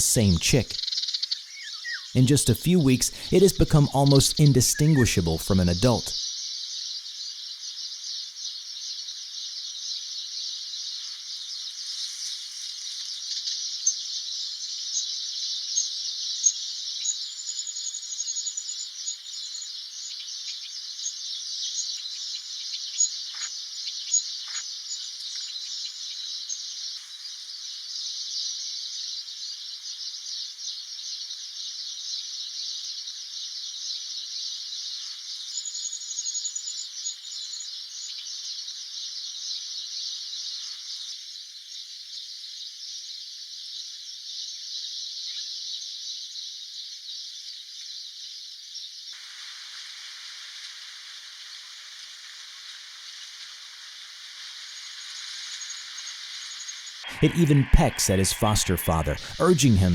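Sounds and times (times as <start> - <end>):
insects chorus: 49.2 - 57.0.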